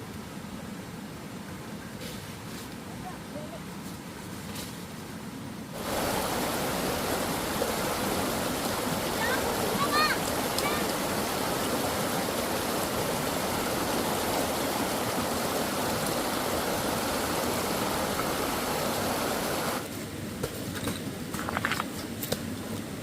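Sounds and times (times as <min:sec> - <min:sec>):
rushing water noise: 0:05.6 - 0:20.4.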